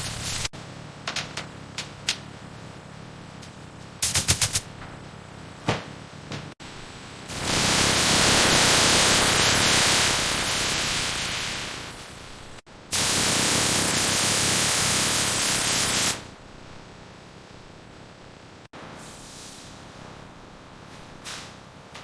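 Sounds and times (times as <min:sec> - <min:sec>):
loud steady hiss: 0:00.0 - 0:00.5, 0:04.0 - 0:04.7, 0:06.7 - 0:16.4.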